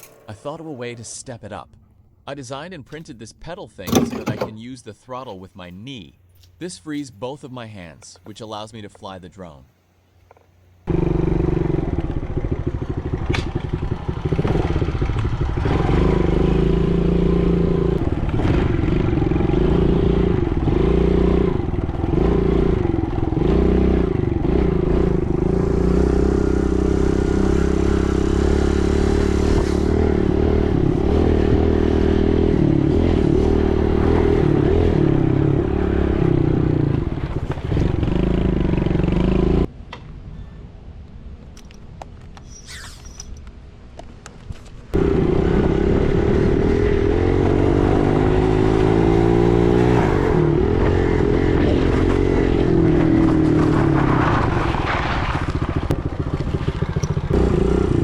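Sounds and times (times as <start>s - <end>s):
dirt bike engine revving: 10.9s - 39.7s, 45.0s - 54.2s, 55.7s - 58.0s.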